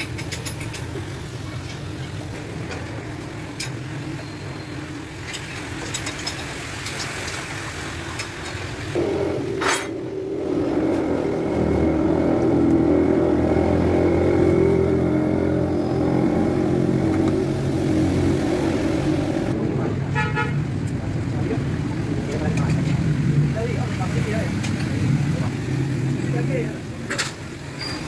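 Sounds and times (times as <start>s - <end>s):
low hum: 9.0s - 19.6s.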